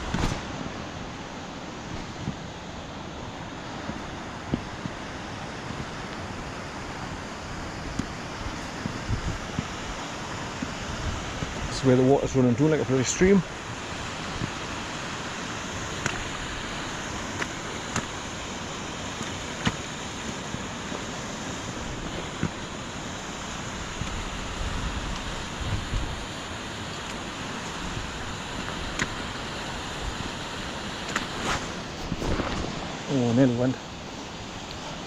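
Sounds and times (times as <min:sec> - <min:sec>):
rushing runoff water: 0:00.0 - 0:35.0
wind buffeting microphone: 0:06.9 - 0:18.6, 0:23.8 - 0:26.4, 0:31.2 - 0:33.7.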